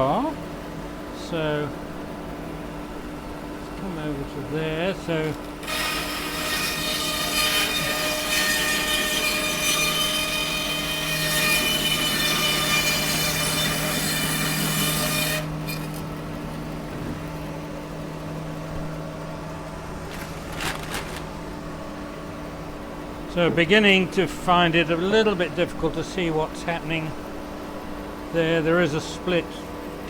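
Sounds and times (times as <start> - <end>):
power saw cutting wood: 5.1 - 16.0.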